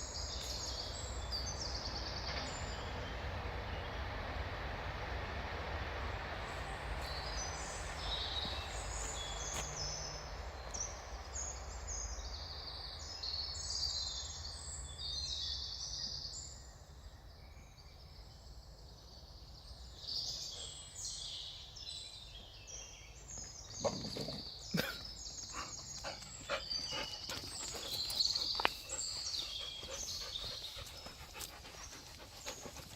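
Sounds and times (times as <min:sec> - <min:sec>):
birds singing and chirping: 0:07.1 - 0:32.9.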